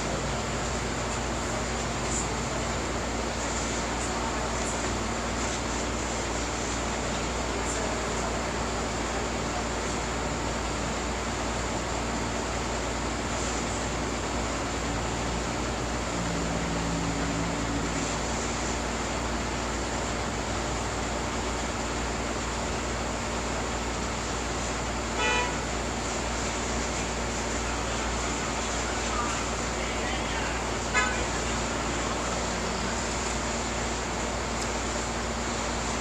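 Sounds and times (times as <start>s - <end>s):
steady background noise: 0.0s - 36.0s
short pitched toot: 25.2s - 25.7s.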